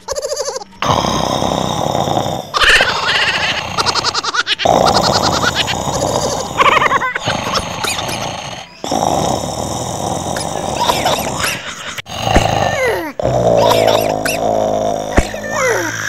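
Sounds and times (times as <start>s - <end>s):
dog growling: 0.8s - 16.0s.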